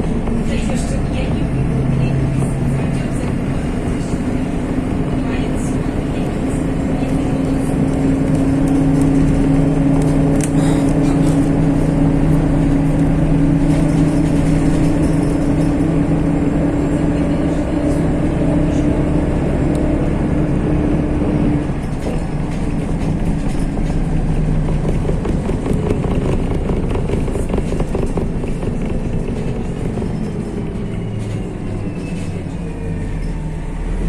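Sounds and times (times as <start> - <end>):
bus engine rumble: 0.0 - 34.0.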